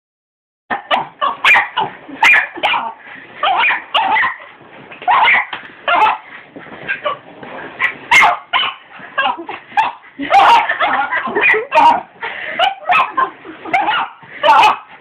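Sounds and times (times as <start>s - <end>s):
dog barking sharply: 8.1s - 8.8s.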